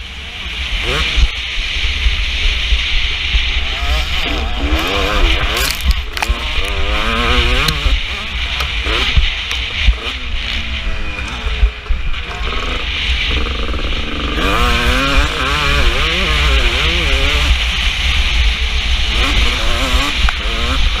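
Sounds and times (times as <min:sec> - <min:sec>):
motocross engine revving: 0:00.0 - 0:21.0.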